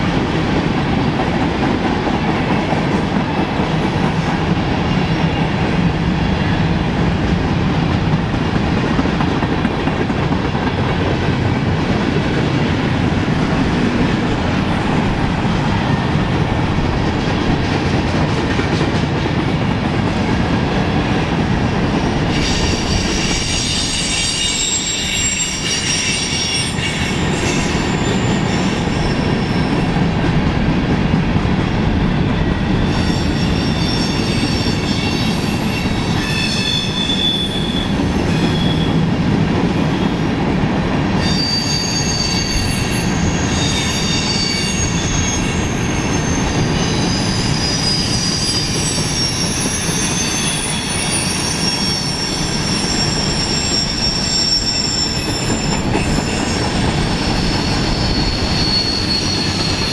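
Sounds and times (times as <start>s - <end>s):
freight train wheels rumbling: 0.0s - 59.9s
high-pitched wheel squeal: 22.3s - 29.7s, 32.4s - 39.0s, 41.2s - 59.9s.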